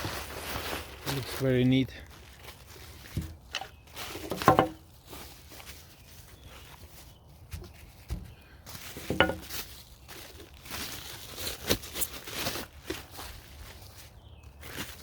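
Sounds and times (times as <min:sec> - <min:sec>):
knocks: 0:04.3 - 0:04.8, 0:09.1 - 0:09.4
packing paper crinkling: 0:08.8 - 0:15.0.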